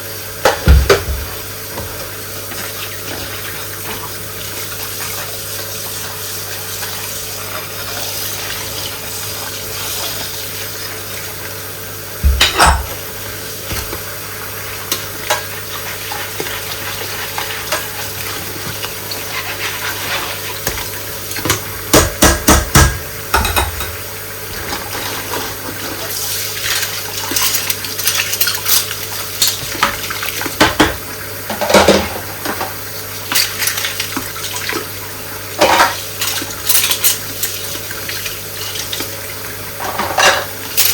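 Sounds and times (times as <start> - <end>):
water running in a sink: 0.0 - 40.9
dishes and cutlery clinking: 12.3 - 13.0, 23.4 - 24.0, 39.8 - 40.9.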